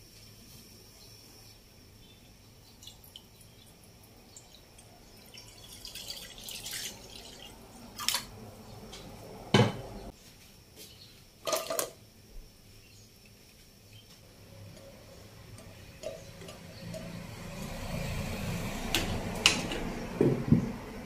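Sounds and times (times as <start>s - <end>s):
water pouring into a wok: 4.4s - 8.3s.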